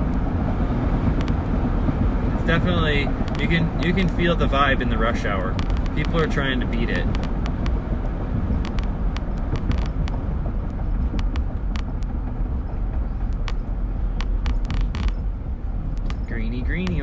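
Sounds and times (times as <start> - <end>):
road and engine rumble: 0.0 - 17.0
sharp clicks: 5.4 - 7.8, 8.5 - 17.0.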